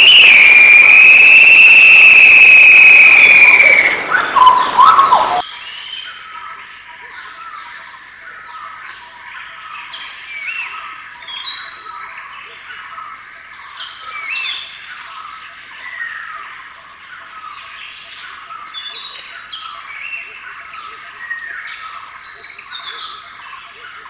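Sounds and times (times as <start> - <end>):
birds chirping and whistling: 0.0 - 6.2, 18.1 - 23.8.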